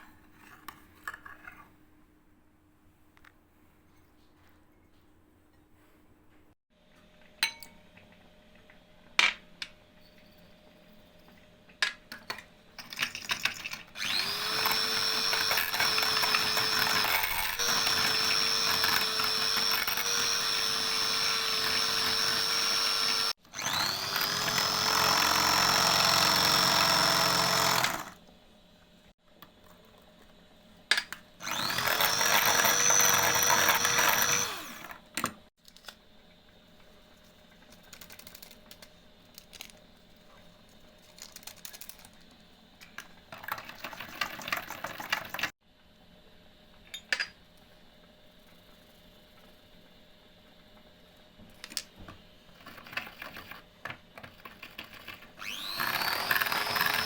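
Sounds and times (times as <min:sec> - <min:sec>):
electric mixer whining: 0:14.0 - 0:28.2, 0:31.4 - 0:35.0, 0:55.4 - 0:57.0.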